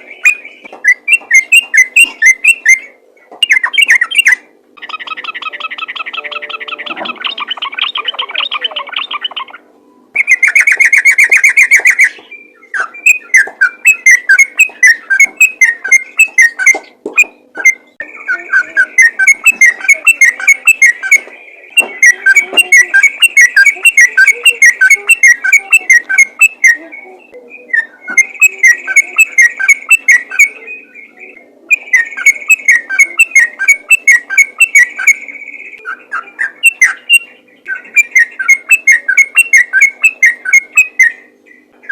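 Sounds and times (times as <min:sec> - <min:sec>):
bird singing chattering whistles: 0:00.0 - 0:09.6, 0:10.2 - 0:41.9.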